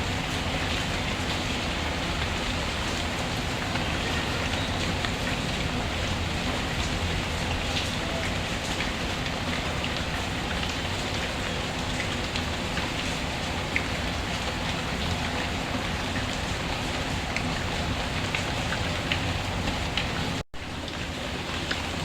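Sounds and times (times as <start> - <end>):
rain falling: 0.0 - 22.0
water drops ticking: 3.0 - 16.4.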